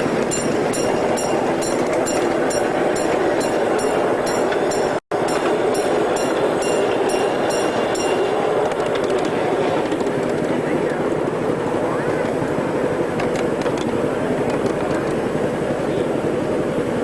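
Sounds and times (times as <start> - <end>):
high ticking: 0.0 - 10.2
miniature train wheels rumbling: 0.0 - 15.9.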